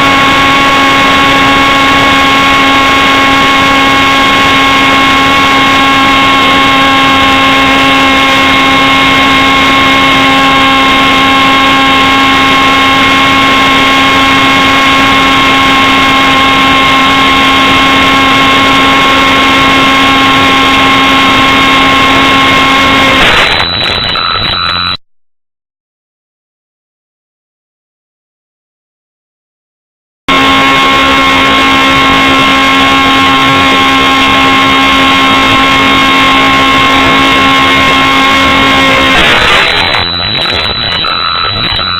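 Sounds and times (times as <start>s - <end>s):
jet engine whine: 0.0s - 25.0s, 30.3s - 41.9s
rushing noise: 35.2s - 41.9s.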